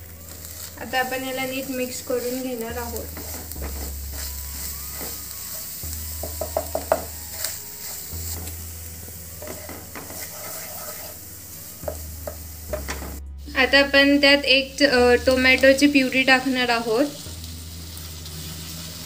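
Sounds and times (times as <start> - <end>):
frying sizzle: 0.0 - 19.0
spatula scraping frying pan: 0.3 - 8.7, 9.4 - 13.2.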